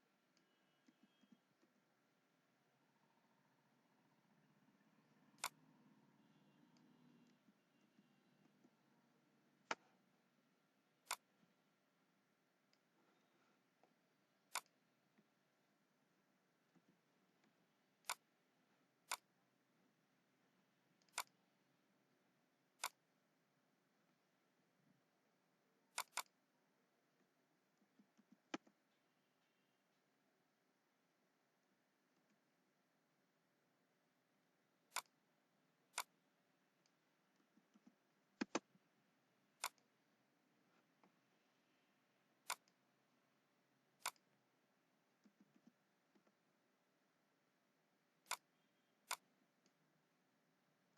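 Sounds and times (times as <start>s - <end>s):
computer mouse clicks: 0.3s - 1.9s, 5.2s - 5.7s, 6.4s - 8.8s, 11.0s - 11.4s, 14.5s - 15.3s, 16.7s - 18.3s, 19.0s - 19.3s, 21.0s - 21.4s, 22.8s - 23.0s, 25.9s - 26.4s, 27.8s - 29.0s, 34.9s - 35.2s, 35.9s - 36.2s, 36.8s - 38.9s, 39.6s - 39.9s, 42.4s - 42.8s, 44.0s - 44.4s, 45.2s - 46.4s, 48.2s - 49.8s.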